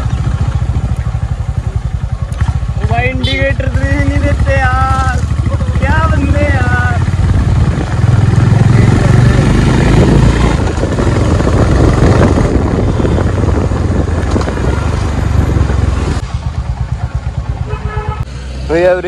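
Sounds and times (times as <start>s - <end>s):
motorcycle engine running: 0.0s - 19.0s
wind rushing over microphone: 6.1s - 16.8s.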